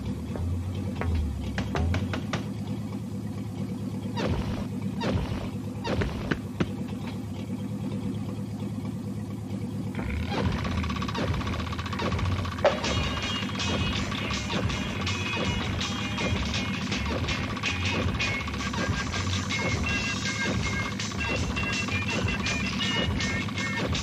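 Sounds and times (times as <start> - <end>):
car engine droning: 0.0 - 24.0
music: 12.6 - 24.0.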